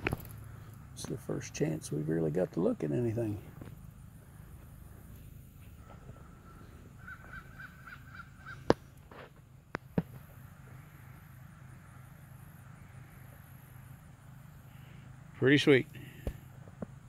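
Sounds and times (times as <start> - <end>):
low steady hum: 0.0 - 17.0
bird calling: 3.2 - 9.1.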